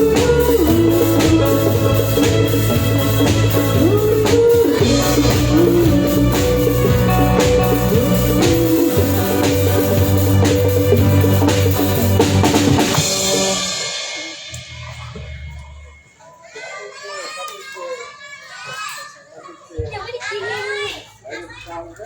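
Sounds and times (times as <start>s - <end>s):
sliding lead melody: 0.0s - 15.9s
band playing live music: 0.0s - 16.0s
drum kit beat: 0.0s - 16.2s.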